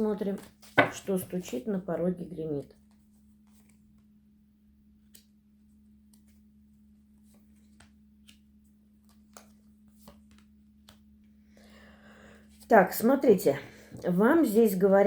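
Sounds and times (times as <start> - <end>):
cards clicking and rustling: 7.2 - 11.4.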